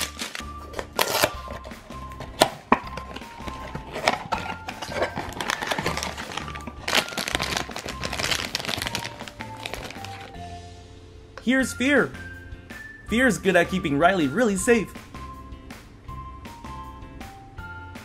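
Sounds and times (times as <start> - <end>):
foil bag crinkling: 0.0 - 1.6, 3.0 - 10.4
background music with steady beat: 0.0 - 18.0.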